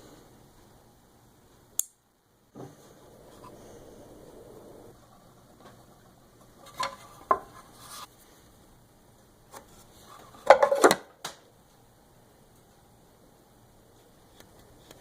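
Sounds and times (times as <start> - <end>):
short scrape: 6.7 - 8.1
objects knocking and clattering: 10.4 - 11.2.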